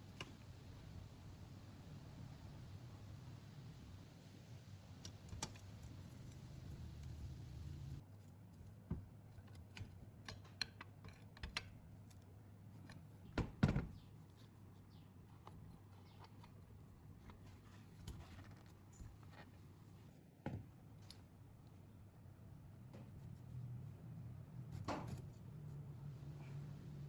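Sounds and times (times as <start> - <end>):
tools clicking and knocking: 9.4 - 11.8.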